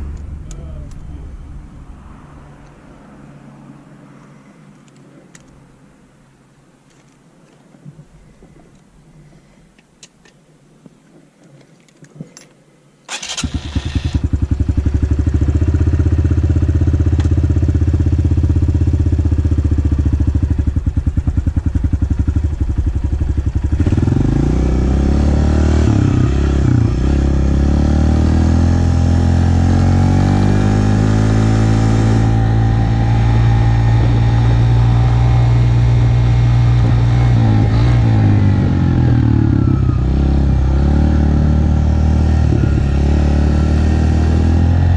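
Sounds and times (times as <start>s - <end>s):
motorcycle engine starting and revving: 13.1s - 44.9s.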